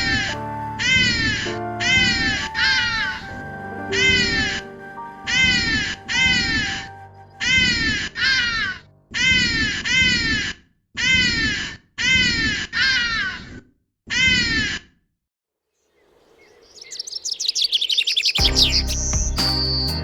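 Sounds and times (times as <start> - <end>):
harsh caw-like bird calls: 7.4 - 15.0
high twittering chirps: 16.0 - 20.0.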